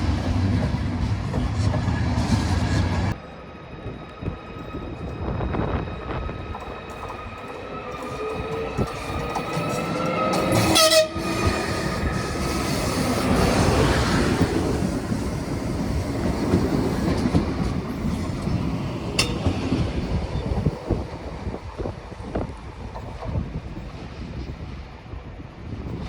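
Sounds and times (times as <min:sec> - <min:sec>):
train wheels clattering on rails: 0:00.0 - 0:03.1, 0:06.1 - 0:24.7
train horn blast: 0:10.6 - 0:11.9.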